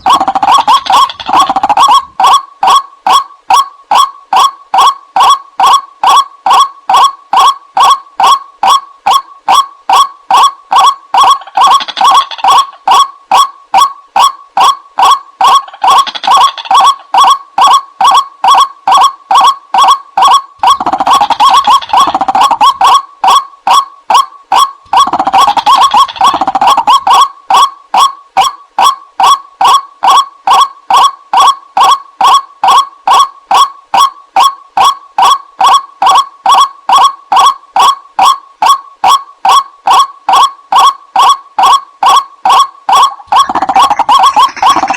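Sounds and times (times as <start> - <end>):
waterhen calling: 0.0 - 3.2, 42.9 - 44.9.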